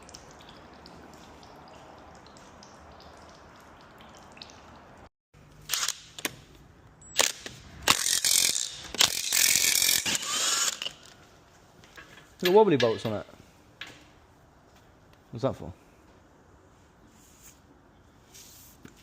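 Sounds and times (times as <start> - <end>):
ratchet spanner clicking: 7.2 - 10.9.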